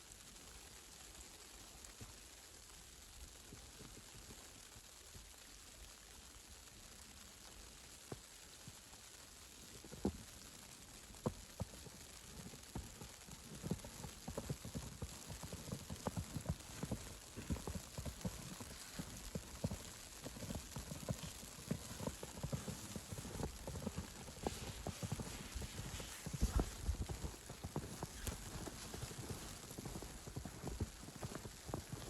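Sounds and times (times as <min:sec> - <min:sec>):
faint steady hiss: 0:00.0 - 0:32.0
footsteps in snow: 0:12.2 - 0:32.0.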